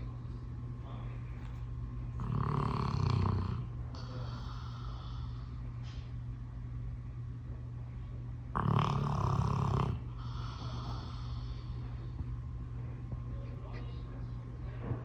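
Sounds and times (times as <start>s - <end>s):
dog snoring: 2.2s - 5.4s, 8.5s - 11.7s
dog breathing: 2.2s - 6.0s, 8.6s - 12.3s.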